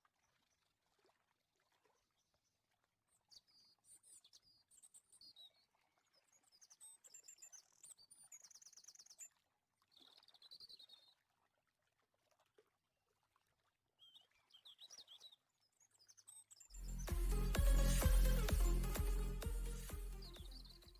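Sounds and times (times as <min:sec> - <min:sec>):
faint songbird chirping: 0:03.2 - 0:11.2, 0:14.0 - 0:18.6, 0:19.7 - 0:20.9.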